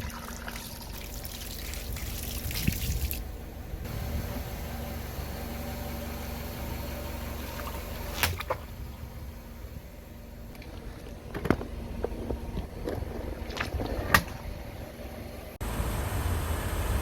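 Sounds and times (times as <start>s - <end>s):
water running and splashing: 0.0s - 3.3s.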